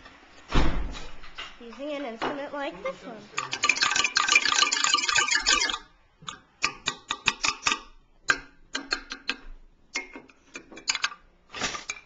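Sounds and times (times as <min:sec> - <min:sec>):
hand percussion rattling: 0:03.3 - 0:11.2
hand percussion clicks: 0:03.4 - 0:11.2.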